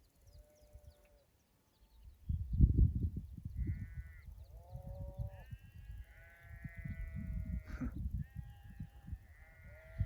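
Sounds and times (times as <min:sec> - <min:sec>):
sheep bleating: 0:05.4 - 0:10.0.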